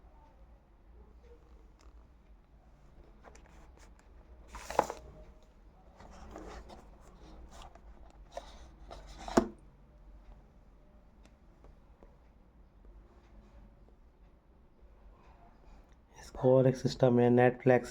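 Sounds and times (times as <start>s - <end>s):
packaging rubbing and rustling: 4.5s - 5.1s.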